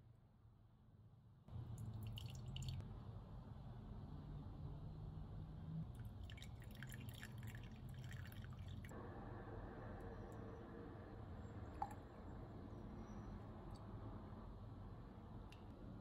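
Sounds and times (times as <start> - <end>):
water dripping: 1.8 - 2.8.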